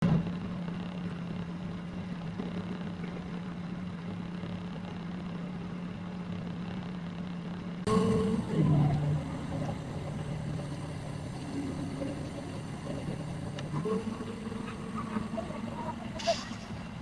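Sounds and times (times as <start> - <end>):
motor engine humming: 7.9 - 17.0.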